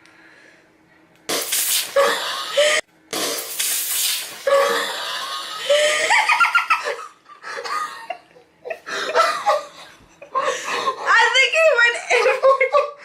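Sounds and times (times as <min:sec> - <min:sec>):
soda fizz spraying: 0:01.3 - 0:02.0, 0:03.2 - 0:04.5
people laughing and giggling: 0:05.0 - 0:11.1, 0:11.9 - 0:13.0.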